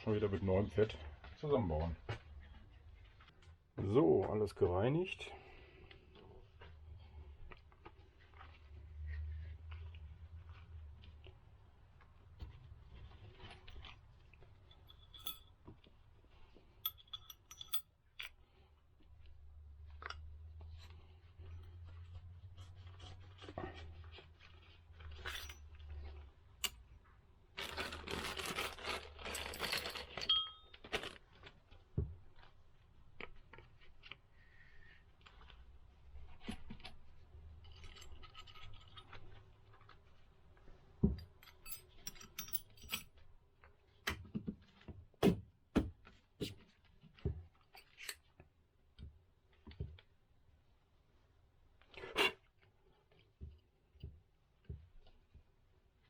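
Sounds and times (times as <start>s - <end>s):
metal parts rubbing and scraping: 14.8s - 15.4s, 16.8s - 17.8s.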